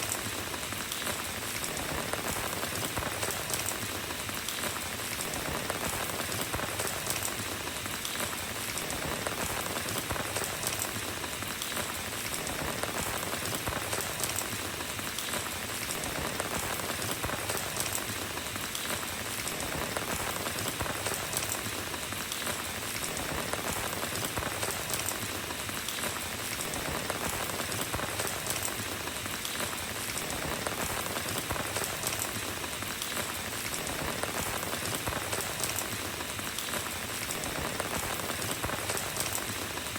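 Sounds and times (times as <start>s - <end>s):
rain pattering on a road: 0.0s - 39.9s.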